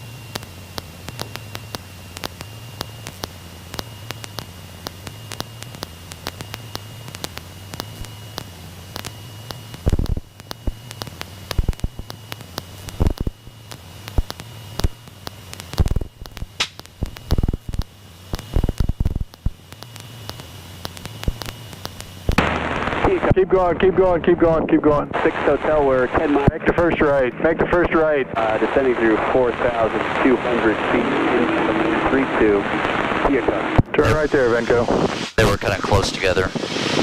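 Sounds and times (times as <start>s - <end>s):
engine and propeller drone: 0.0s - 37.0s
sharp clicks and static: 0.0s - 37.0s.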